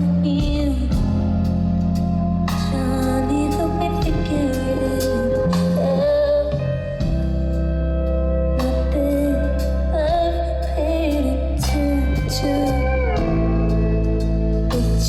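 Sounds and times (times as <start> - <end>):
live band playing pop ballad: 0.0 - 15.0.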